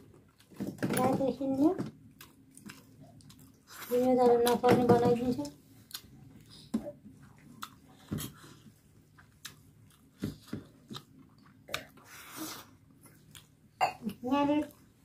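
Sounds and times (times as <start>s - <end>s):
mouth chewing sounds: 2.1s - 3.9s, 5.8s - 14.8s.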